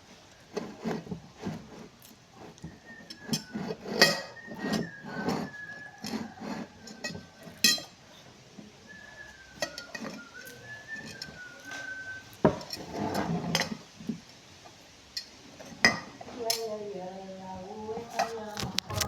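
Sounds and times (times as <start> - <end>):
cutlery clinking against dishes: 6.0 - 8.0, 9.6 - 12.9.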